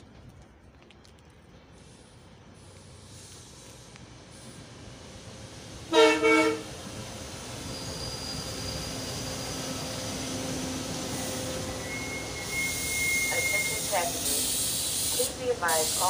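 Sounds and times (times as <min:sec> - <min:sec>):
train rolling past rumble: 0:01.4 - 0:16.0
train horn blasts: 0:05.9 - 0:06.7.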